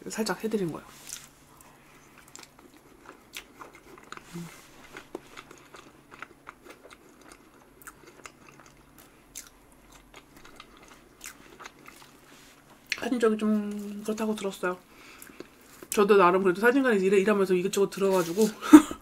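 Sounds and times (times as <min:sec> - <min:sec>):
person chewing with mouth smacks: 0:01.0 - 0:13.0.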